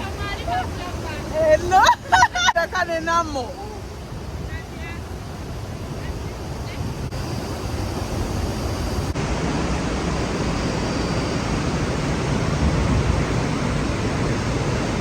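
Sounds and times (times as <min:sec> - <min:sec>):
rushing water: 0:00.0 - 0:15.0
wind buffeting microphone: 0:04.0 - 0:15.0.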